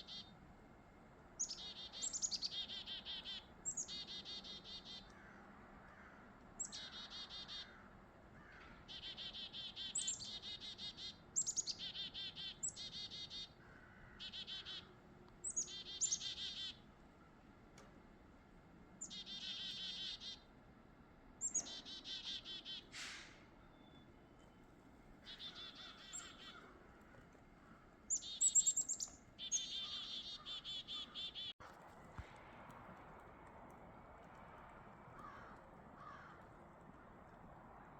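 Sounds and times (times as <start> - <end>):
chickadees calling: 0.0 - 0.3, 1.4 - 5.3, 6.6 - 16.8, 19.0 - 20.5, 21.4 - 23.3, 25.2 - 31.6.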